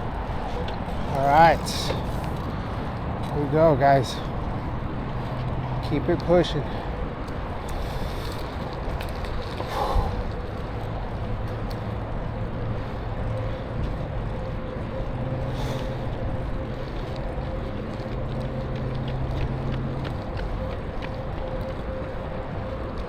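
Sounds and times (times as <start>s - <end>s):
thin steady whine: 0.0s - 19.0s
low hum: 0.0s - 23.0s
wind and tyre noise: 0.0s - 23.0s.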